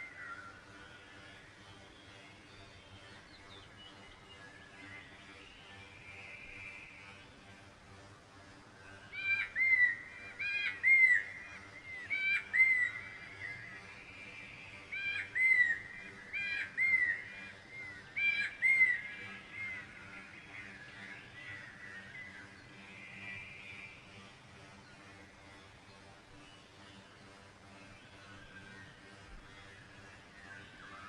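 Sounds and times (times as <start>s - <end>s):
bird whistled call: 9.2s - 11.3s, 12.0s - 13.0s, 14.9s - 15.8s, 18.2s - 19.8s.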